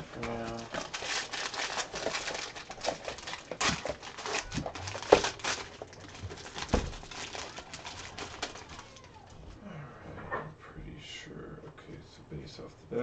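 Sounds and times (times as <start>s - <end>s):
packaging crinkling: 0.0s - 9.5s.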